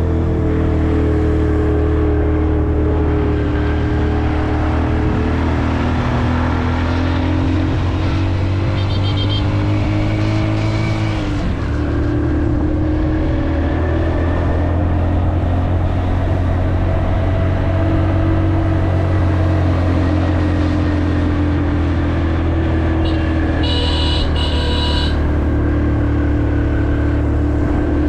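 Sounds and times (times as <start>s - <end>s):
motorcycle engine running: 7.0s - 10.3s, 22.7s - 28.0s.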